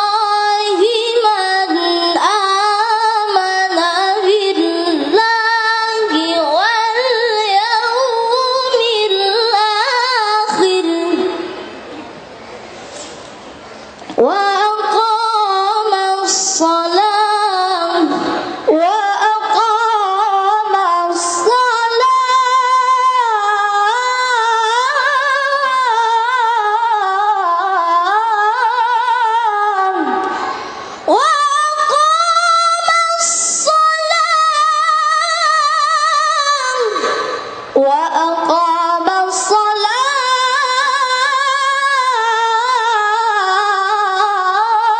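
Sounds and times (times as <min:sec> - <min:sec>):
child reciting melodically: 0:00.0 - 0:11.5, 0:31.1 - 0:44.9.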